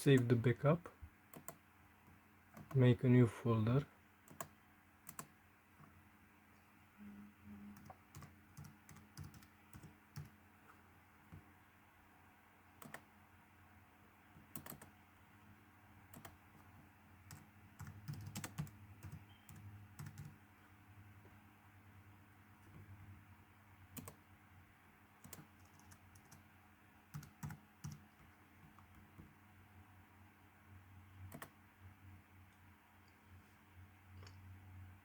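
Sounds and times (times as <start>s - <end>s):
faint low hum: 0.0s - 35.0s
computer keyboard typing: 1.3s - 1.6s, 2.5s - 2.8s, 4.3s - 5.3s, 7.8s - 10.4s, 12.8s - 13.1s, 14.5s - 15.0s, 16.1s - 16.4s, 17.3s - 20.4s, 24.0s - 24.2s, 25.2s - 26.4s, 27.1s - 29.3s, 31.3s - 31.5s.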